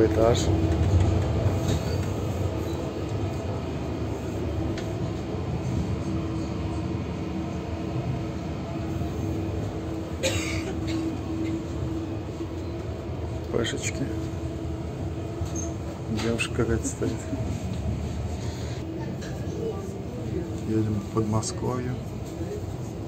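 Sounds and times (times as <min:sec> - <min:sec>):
constant hum: 0:00.0 - 0:23.0
train carriage running noise: 0:00.0 - 0:23.0.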